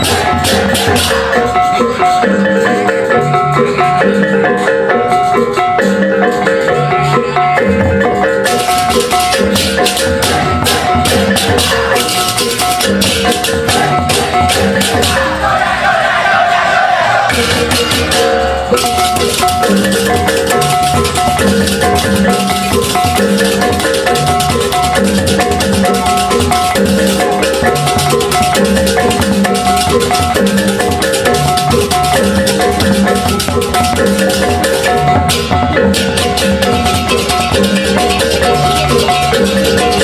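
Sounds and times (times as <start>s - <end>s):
cymbals clashing: 0.0s - 5.5s, 8.1s - 16.0s, 17.2s - 40.0s.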